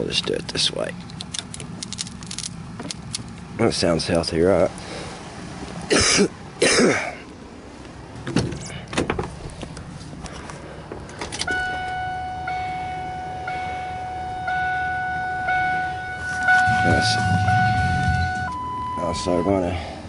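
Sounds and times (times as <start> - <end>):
handling noises: 0.2 - 3.5, 15.4 - 18.7
truck warning chime blipping: 11.4 - 19.9.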